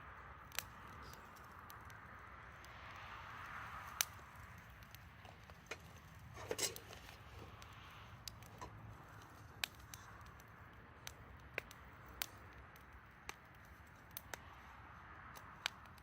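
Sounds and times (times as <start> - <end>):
campfire crackling: 0.0 - 16.0
faint fire hiss: 0.0 - 16.0.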